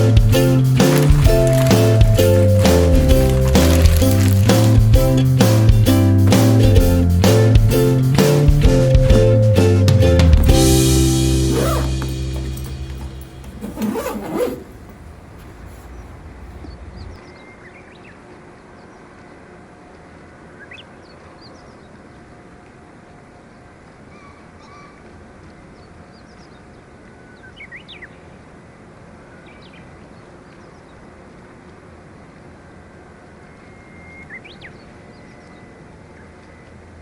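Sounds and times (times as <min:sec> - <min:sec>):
outdoor background hiss: 0:00.0 - 0:37.0
low rumble: 0:14.6 - 0:17.3.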